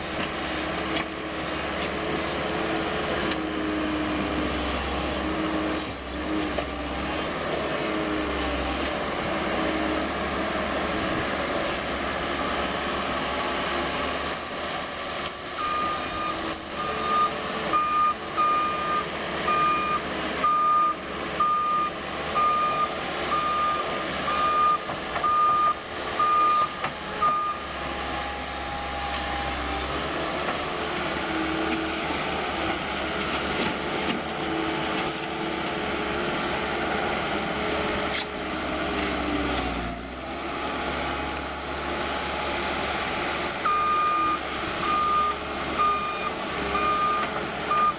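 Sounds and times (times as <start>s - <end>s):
diesel engine running: 0.0s - 47.9s
reversing alarm beeping: 15.6s - 27.7s, 43.6s - 47.9s.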